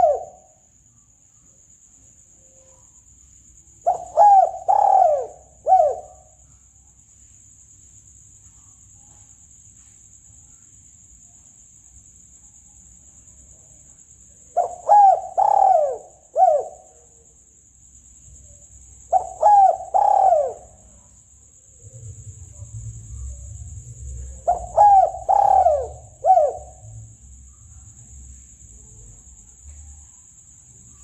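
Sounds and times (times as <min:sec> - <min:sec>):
dove cooing: 0:00.0 - 0:00.5, 0:03.8 - 0:06.4, 0:14.6 - 0:16.9, 0:19.1 - 0:20.9, 0:22.0 - 0:27.0
steady high-pitched hiss: 0:00.0 - 0:31.0.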